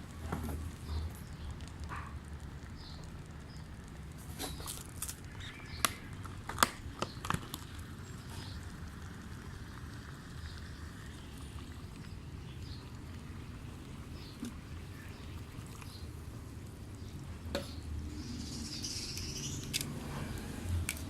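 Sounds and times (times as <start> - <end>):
faint steady simmer: 0.0 - 21.0
sharp pops and crackles: 0.1 - 18.0, 19.0 - 20.0.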